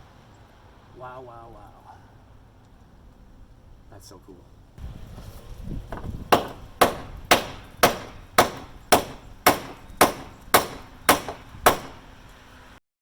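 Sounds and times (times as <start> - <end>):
hammer striking sheet metal: 6.0 - 12.1.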